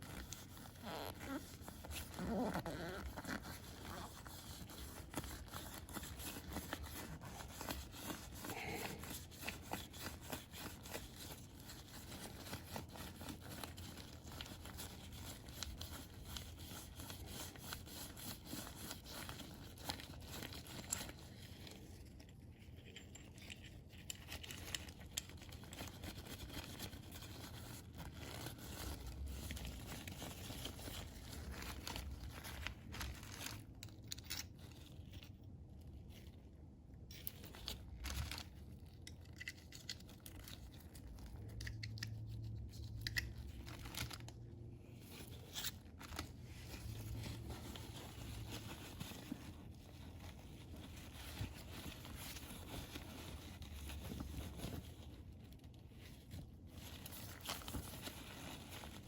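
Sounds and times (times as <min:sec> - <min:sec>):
scraping and crinkling of filter parts: 0:17.1 - 0:59.0.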